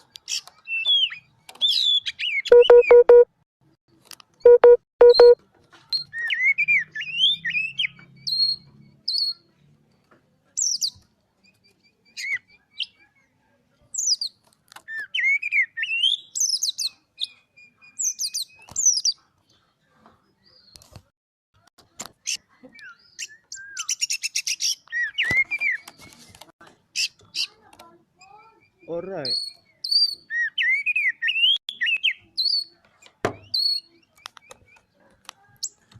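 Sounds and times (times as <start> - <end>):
bird singing: 0.0 - 3.2, 4.4 - 13.4, 14.0 - 20.9, 22.2 - 26.3, 26.9 - 35.9
short flat beeps: 2.5 - 3.3, 4.4 - 5.4.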